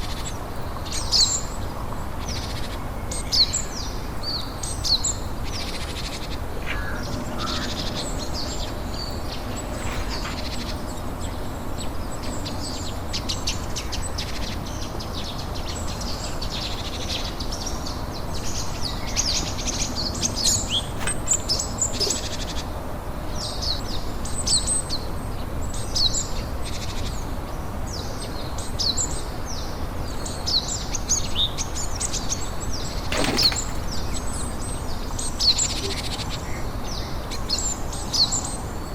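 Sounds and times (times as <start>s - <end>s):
birds chirping: 31.7s - 37.6s.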